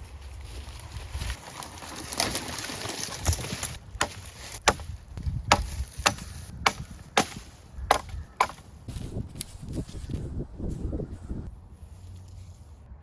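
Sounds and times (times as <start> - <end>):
rustling: 0.0 - 6.5
wood being chopped: 3.2 - 8.7.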